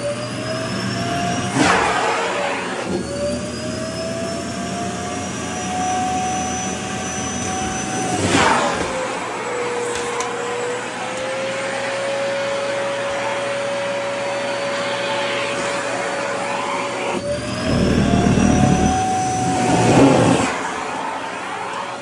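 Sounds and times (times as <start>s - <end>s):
vacuum cleaner motor whine: 0.0s - 22.0s
rough rumbling of fabric on nozzle: 17.0s - 20.6s.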